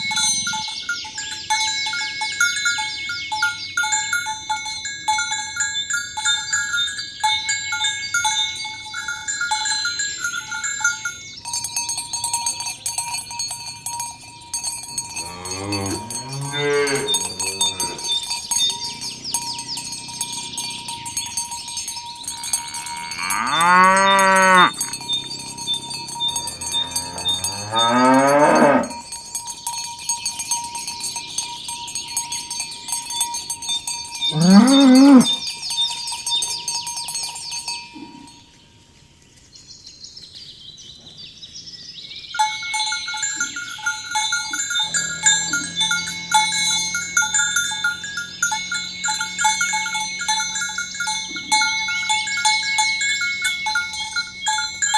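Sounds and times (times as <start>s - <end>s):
pulsing ringing tones: 0.0s - 38.6s, 42.4s - 54.9s
high chirring: 9.8s - 37.8s, 42.4s - 54.9s
cattle mooing: 15.2s - 18.2s, 22.4s - 29.0s, 34.3s - 35.4s, 44.7s - 47.6s.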